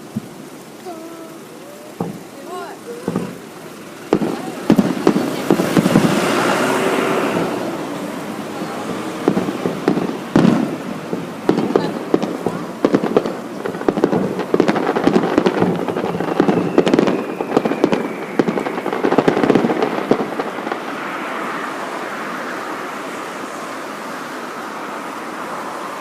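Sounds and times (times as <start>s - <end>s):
fireworks crackling: 0.0s - 26.0s
steady rushing noise: 0.0s - 26.0s
falling whistle: 15.6s - 19.8s.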